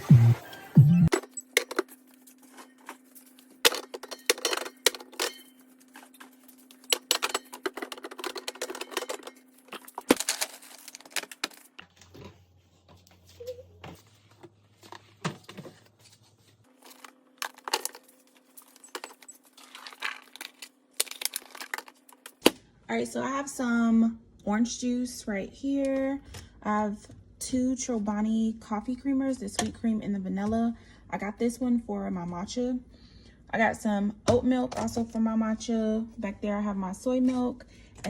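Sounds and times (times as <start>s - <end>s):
bottles and containers clinking: 3.6s - 11.7s.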